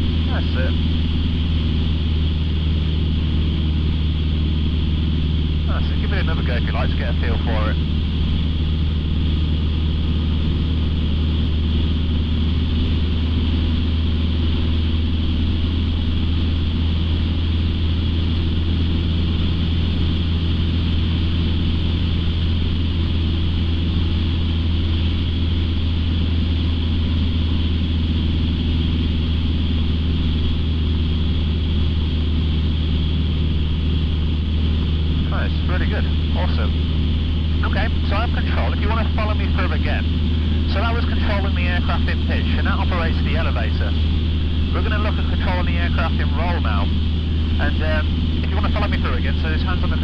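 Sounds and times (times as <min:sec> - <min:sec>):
propeller aircraft engine droning: 0:00.0 - 0:50.0.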